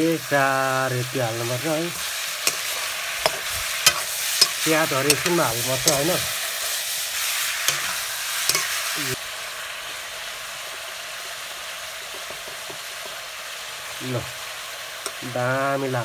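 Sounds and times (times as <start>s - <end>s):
chicken sizzling in a wok: 0.0s - 16.0s
metal spatula scraping wok: 1.1s - 9.2s.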